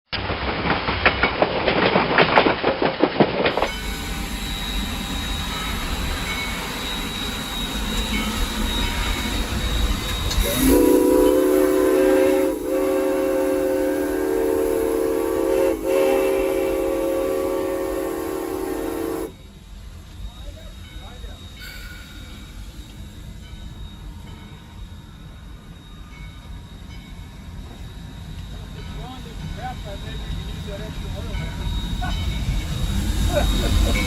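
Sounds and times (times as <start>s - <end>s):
steam locomotive running: 0.2s - 34.0s
steam whistle blast: 10.3s - 19.4s.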